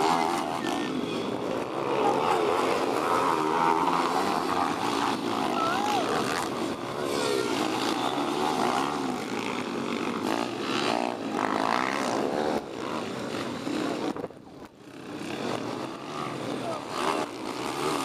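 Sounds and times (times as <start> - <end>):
pit bike engines revving: 0.0 - 18.0.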